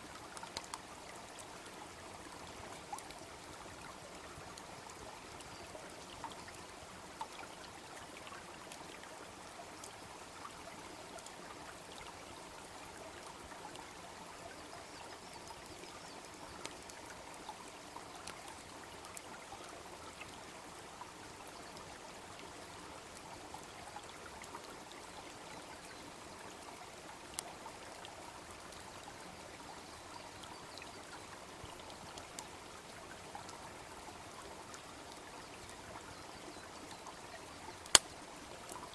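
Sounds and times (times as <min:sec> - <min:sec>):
brook babbling: 0:00.0 - 0:38.9
campfire crackling and popping: 0:00.3 - 0:00.8, 0:37.8 - 0:38.8.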